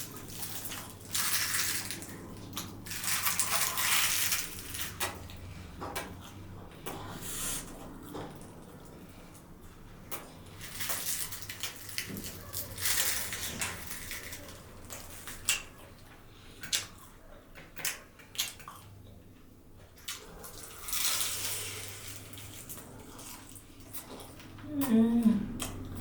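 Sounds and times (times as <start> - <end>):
crunchy rustling: 0.0 - 5.6, 10.4 - 15.9
chewing and biting food: 0.0 - 26.0.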